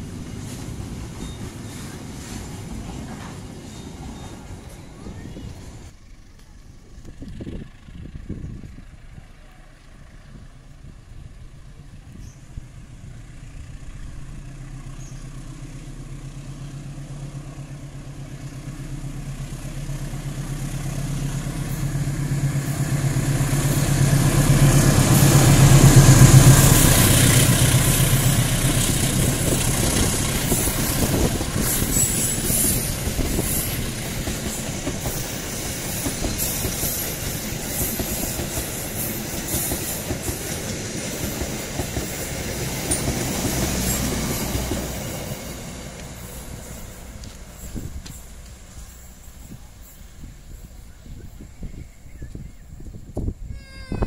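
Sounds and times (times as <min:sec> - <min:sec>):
locomotive engine hum: 0:00.0 - 0:53.5
passenger coaches rumbling: 0:00.0 - 0:54.0
wheels clicking over rail joints: 0:17.3 - 0:50.9.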